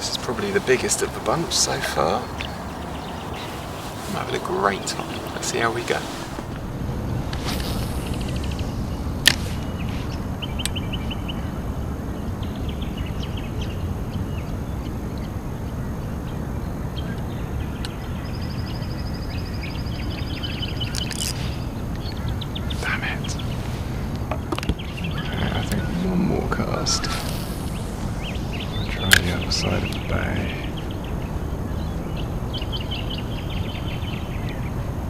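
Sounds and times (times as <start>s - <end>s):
low rumble: 0.0s - 14.8s
birds trilling chirps: 0.0s - 35.0s.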